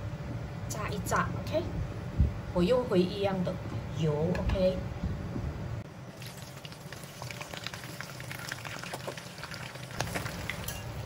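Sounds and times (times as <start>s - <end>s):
prawns sizzling in hot oil: 6.1s - 11.0s.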